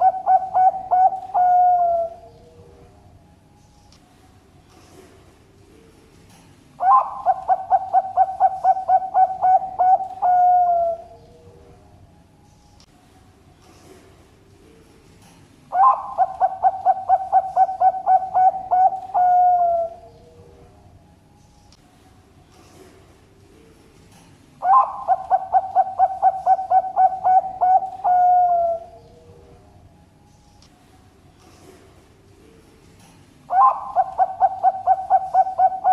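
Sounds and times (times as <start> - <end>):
dove cooing: 0.0 - 2.9, 6.8 - 11.8, 15.7 - 20.7, 24.6 - 29.6, 33.5 - 35.9.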